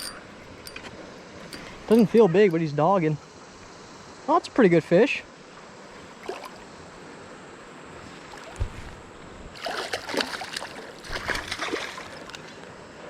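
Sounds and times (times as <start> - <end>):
river water rushing: 5.7 - 12.8
fish splashing at surface: 9.6 - 12.5.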